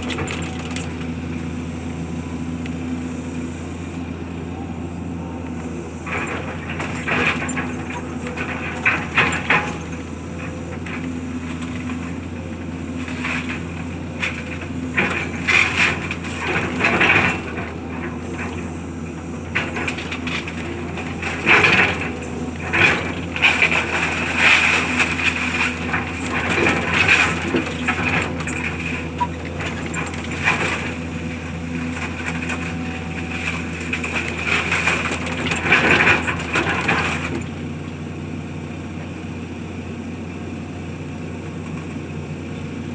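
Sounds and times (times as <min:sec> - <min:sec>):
heavy machine engine running: 0:00.0 - 0:42.9
debris crunching and cracking: 0:06.0 - 0:37.8.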